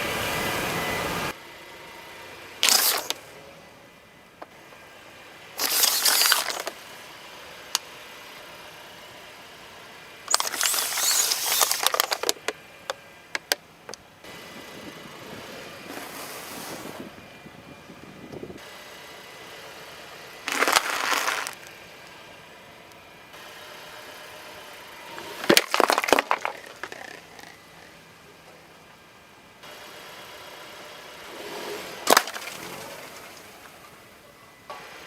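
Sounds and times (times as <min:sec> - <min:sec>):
objects crunching under a tyre: 0:02.6 - 0:03.2, 0:05.6 - 0:06.8, 0:10.3 - 0:12.6, 0:15.8 - 0:17.1, 0:20.5 - 0:21.7, 0:25.1 - 0:27.9, 0:31.3 - 0:33.9
sharp snaps and cracks: 0:02.6 - 0:03.2, 0:05.6 - 0:06.8, 0:10.3 - 0:14.0, 0:20.5 - 0:21.7.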